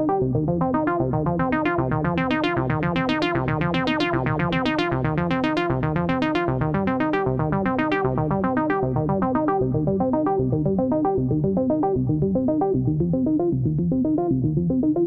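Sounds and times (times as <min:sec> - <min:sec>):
arpeggiated synthesizer pattern: 0:00.0 - 0:15.0
repeating synth bass line: 0:00.0 - 0:15.0.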